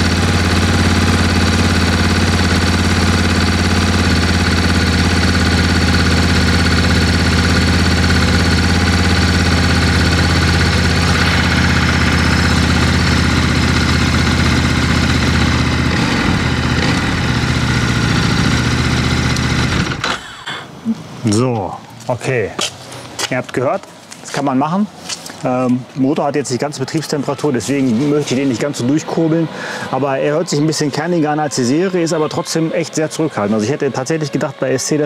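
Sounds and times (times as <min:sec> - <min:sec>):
motorcycle engine idling: 0:00.0 - 0:20.4.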